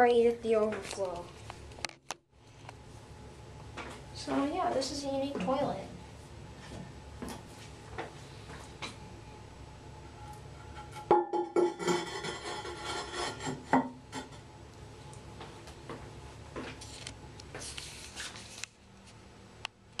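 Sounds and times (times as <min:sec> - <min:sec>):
porcelain lid scraping: 0:10.1 - 0:14.4.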